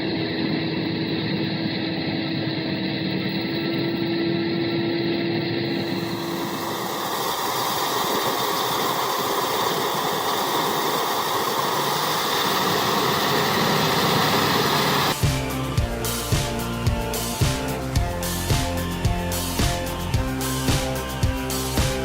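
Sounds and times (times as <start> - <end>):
heavy machine engine running: 5.7 - 22.0
guitar and drum music: 14.9 - 22.0.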